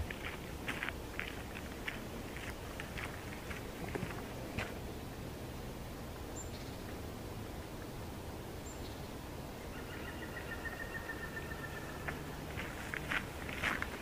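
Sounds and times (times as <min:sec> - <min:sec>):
forest ambience: 0:00.0 - 0:14.0.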